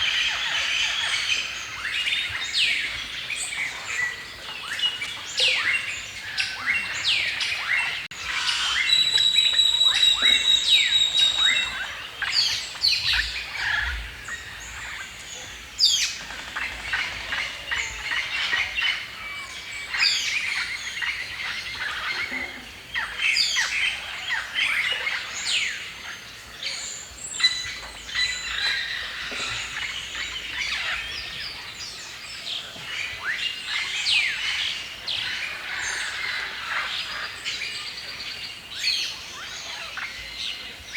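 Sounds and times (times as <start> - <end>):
birds chirping and singing: 0.0 - 40.9
bird high whistle: 8.5 - 11.8.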